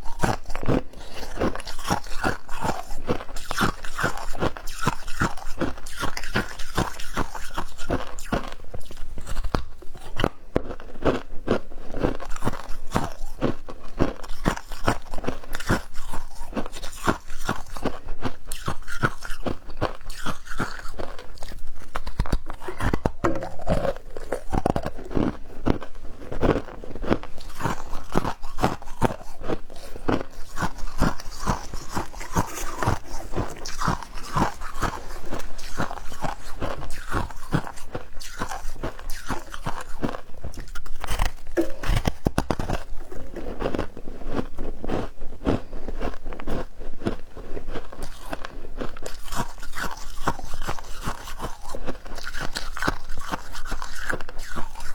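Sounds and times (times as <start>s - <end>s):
ice being chewed: 0.0s - 54.9s.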